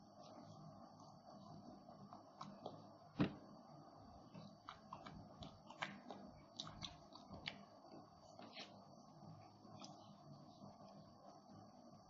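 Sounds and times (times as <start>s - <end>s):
person chewing with wet smacks: 4.6s - 8.6s.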